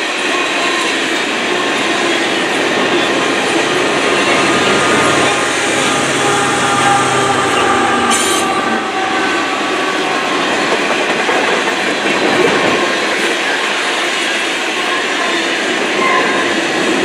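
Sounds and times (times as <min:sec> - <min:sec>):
locomotive engine drone: 0:00.0 - 0:13.0.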